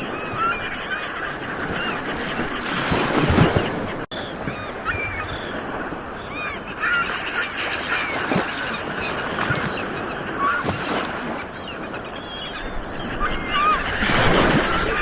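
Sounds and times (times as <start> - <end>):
birds honking: 0.0 - 15.0.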